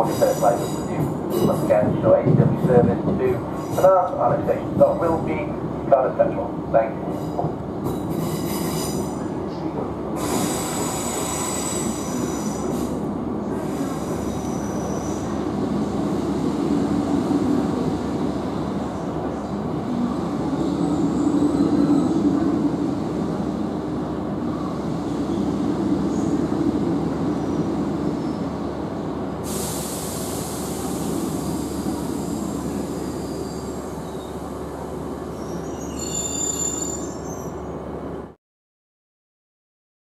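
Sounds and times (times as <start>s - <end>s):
train rail rumble: 0.0s - 38.3s
high-pitched brake squeals: 35.3s - 37.6s.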